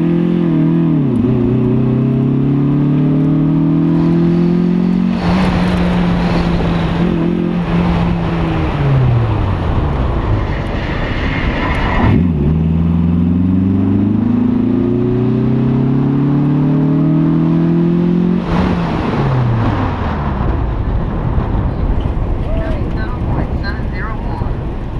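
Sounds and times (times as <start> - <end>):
car engine revving: 0.0 - 24.9
wind rushing over microphone: 3.5 - 15.1, 18.2 - 24.9.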